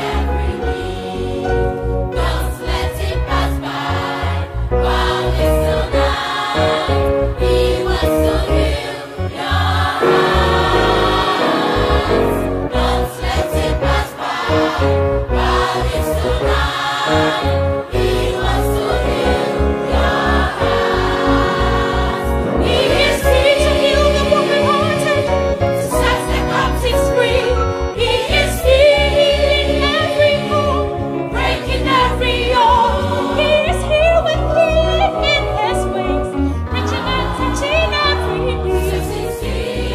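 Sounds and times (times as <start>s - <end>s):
gospel choir singing: 0.0s - 39.9s
bass line: 9.6s - 39.9s.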